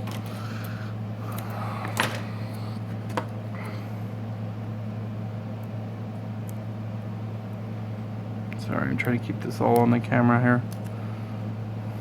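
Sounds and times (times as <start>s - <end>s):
fan hum: 0.0s - 12.0s.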